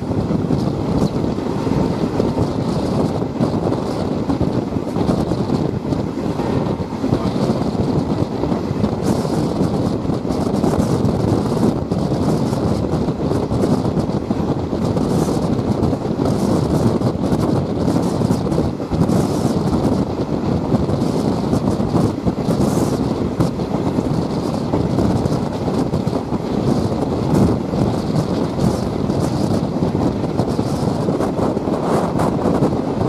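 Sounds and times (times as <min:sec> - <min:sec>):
train rumbling: 0:00.0 - 0:33.0
wind buffeting microphone: 0:00.0 - 0:33.0.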